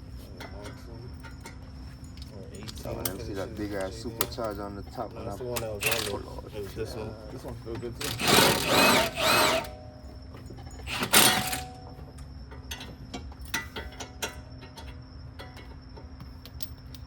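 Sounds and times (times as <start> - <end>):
light clicks of tools: 0.4 - 4.7
impact wrench bursts: 5.6 - 6.2, 8.0 - 9.8, 10.8 - 11.8.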